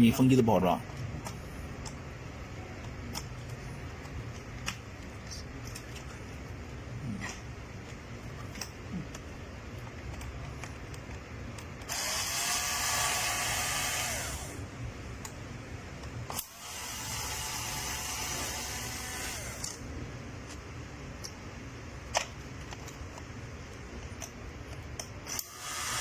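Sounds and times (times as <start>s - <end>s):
small electric motor running: 11.9s - 14.6s, 16.3s - 19.8s, 25.3s - 26.0s.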